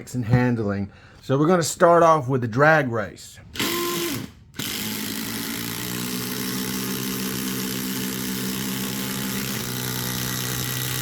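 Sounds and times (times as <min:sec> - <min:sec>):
cordless impact drivers hammering: 0:03.6 - 0:11.0.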